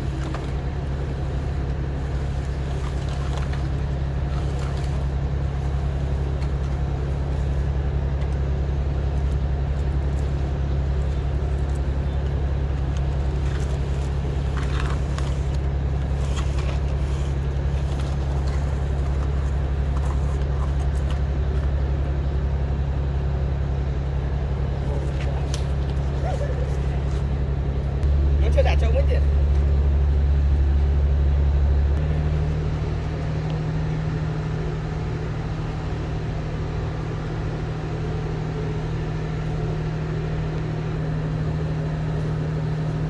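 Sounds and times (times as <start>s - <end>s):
low mechanical hum: 0.0s - 43.0s.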